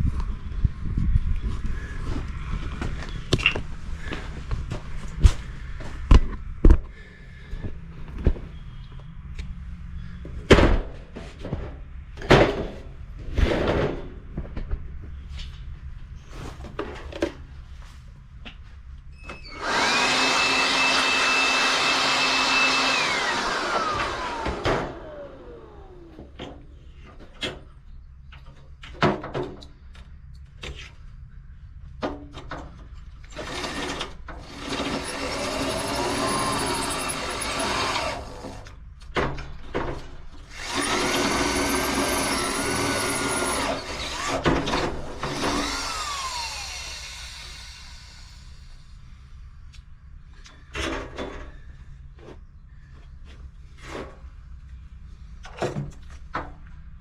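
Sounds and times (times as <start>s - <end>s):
power tool motor whine: 19.4s - 26.3s, 33.3s - 38.7s, 40.5s - 48.8s.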